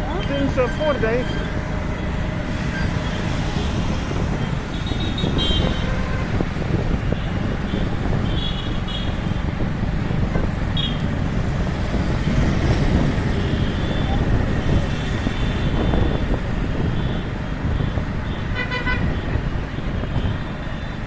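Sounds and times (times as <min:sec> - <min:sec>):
road and wind rumble: 0:00.0 - 0:21.0
vehicle horn toots: 0:04.8 - 0:06.3, 0:18.4 - 0:19.3.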